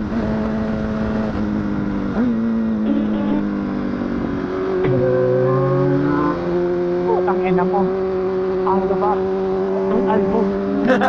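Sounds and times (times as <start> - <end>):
motorcycle engine running: 0.0 - 11.0
second lower engine note: 4.8 - 6.3.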